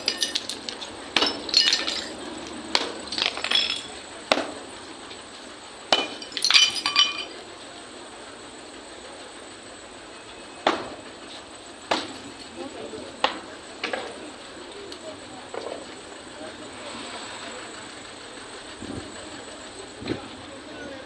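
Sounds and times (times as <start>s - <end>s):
demolition impacts with clinking debris: 0.0s - 5.2s, 5.9s - 7.5s.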